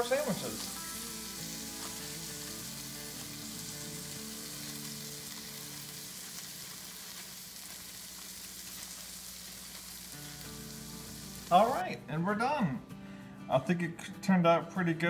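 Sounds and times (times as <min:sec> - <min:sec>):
background music with held notes: 0:00.0 - 0:06.4, 0:10.2 - 0:15.0
steak sizzling in a skillet: 0:00.0 - 0:11.9.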